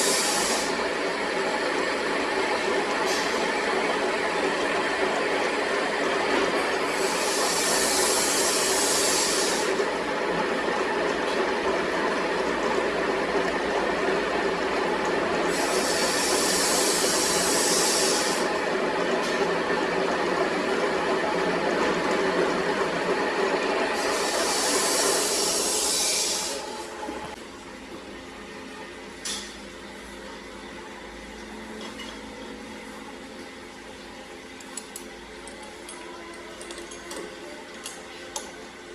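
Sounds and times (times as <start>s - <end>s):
workshop machine running: 0.0s - 38.9s
high hiss bursts: 24.0s - 26.7s.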